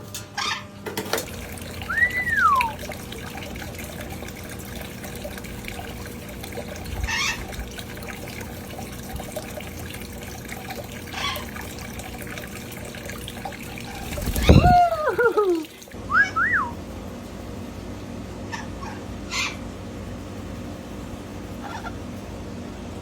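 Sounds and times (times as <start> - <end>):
fountain water trickling: 1.2 - 16.0
rising and falling whistle: 1.9 - 2.8, 16.1 - 16.8.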